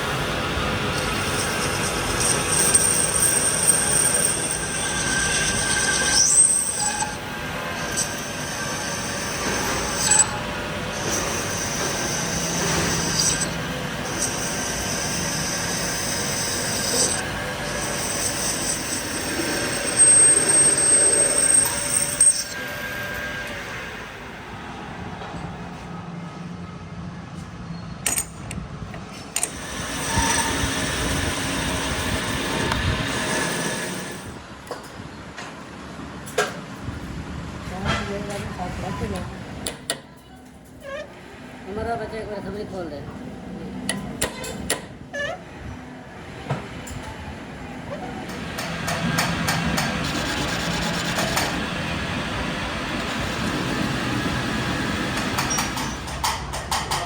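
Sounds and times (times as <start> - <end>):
workshop machine hissing: 0.0 - 24.6, 29.4 - 34.4, 46.2 - 56.3.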